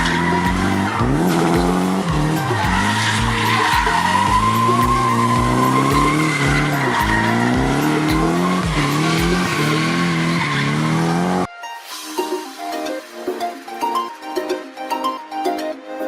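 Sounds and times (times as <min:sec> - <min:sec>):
music with thumping beat: 0:00.0 - 0:11.5
quieter music: 0:00.0 - 0:16.0.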